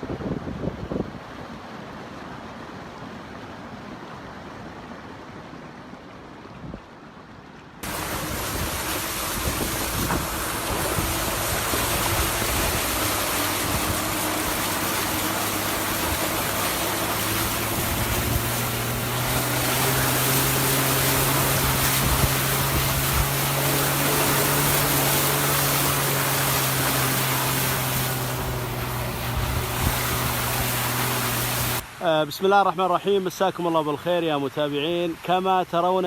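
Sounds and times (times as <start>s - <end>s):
wind rumble on microphone: 0.0s - 1.6s, 7.8s - 31.8s
water rushing: 0.0s - 36.0s
vehicle engine humming: 7.8s - 31.8s.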